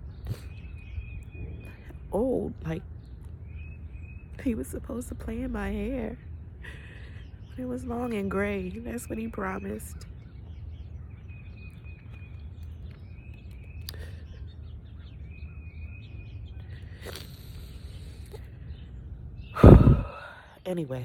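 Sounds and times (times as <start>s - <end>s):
steady low rumble: 0.0s - 20.8s
bird chirping: 0.0s - 21.0s.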